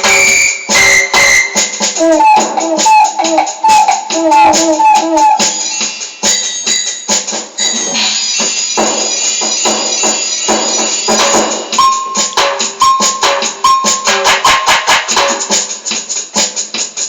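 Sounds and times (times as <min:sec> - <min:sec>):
keyboard playing short notes: 0:00.0 - 0:05.5, 0:11.8 - 0:14.8
hand percussion with jingles: 0:00.0 - 0:17.0.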